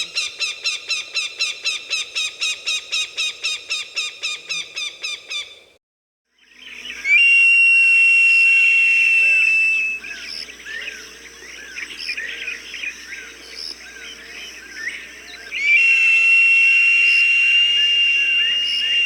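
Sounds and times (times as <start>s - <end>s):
hawk whistled call: 7.1s - 10.1s, 15.6s - 19.0s.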